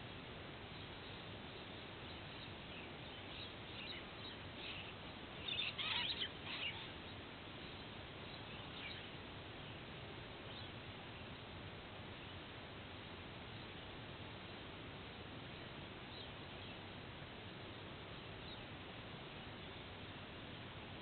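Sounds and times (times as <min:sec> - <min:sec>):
background hiss: 0:00.0 - 0:21.0
birds chirping: 0:00.7 - 0:09.8.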